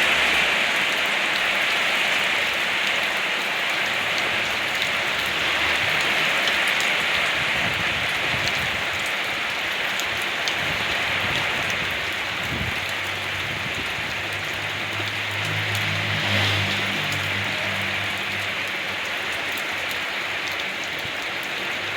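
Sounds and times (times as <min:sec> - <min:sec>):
rain falling on a surface: 0:00.0 - 0:21.9.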